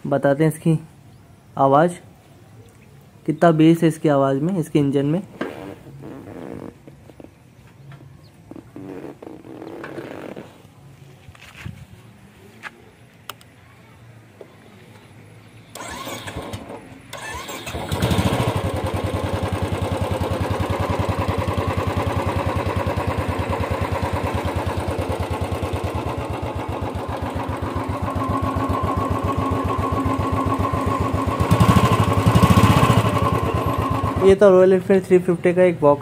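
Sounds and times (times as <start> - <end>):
motorcycle electric starter cranking: 15.7 - 22.7
motorcycle engine idling: 15.7 - 35.0.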